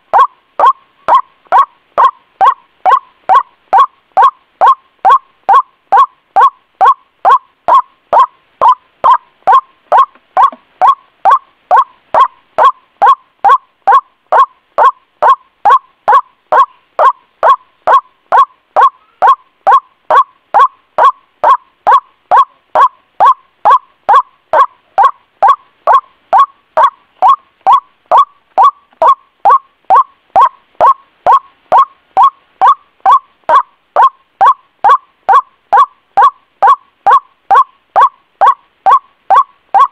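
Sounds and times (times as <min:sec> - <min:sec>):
waterhen calling: 0:00.0 - 0:39.9.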